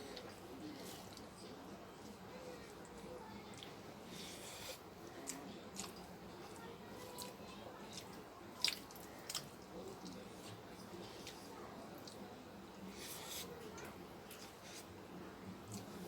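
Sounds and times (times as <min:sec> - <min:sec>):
person chewing food: 0:03.5 - 0:12.2.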